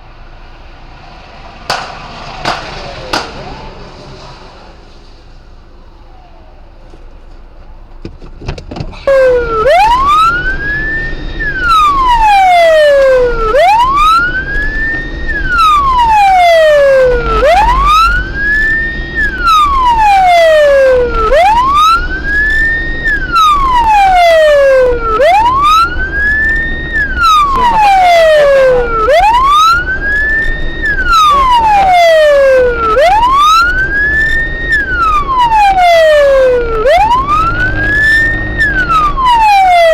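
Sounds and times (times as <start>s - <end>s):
low vehicle rumble: 0.0s - 39.9s
police siren wailing: 0.7s - 5.0s, 5.6s - 8.2s, 8.8s - 39.9s.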